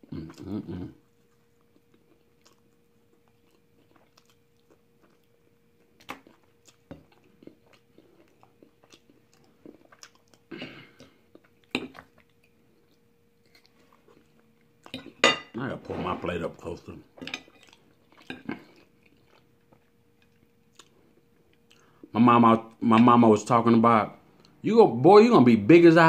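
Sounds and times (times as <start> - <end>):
wet chewing: 1.2 - 15.2, 17.2 - 21.9.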